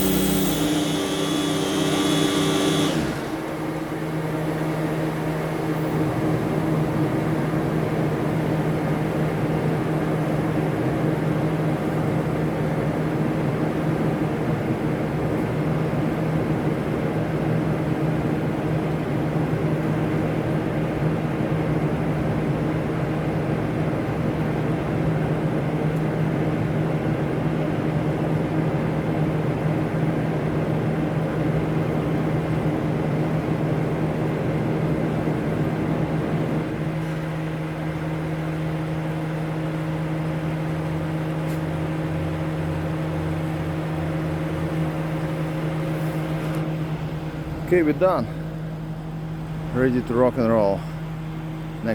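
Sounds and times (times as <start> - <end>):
heavy machinery humming: 0.0 - 4.2.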